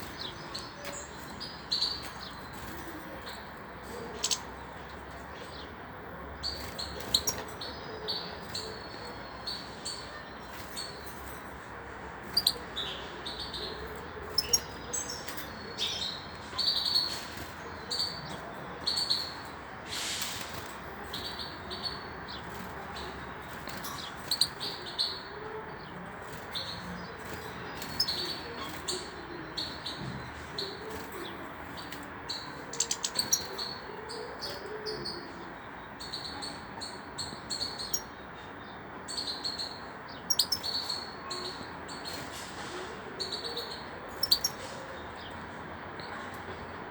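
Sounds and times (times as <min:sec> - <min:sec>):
goldfinch chirping: 0:39.1 - 0:41.6, 0:43.4 - 0:44.6.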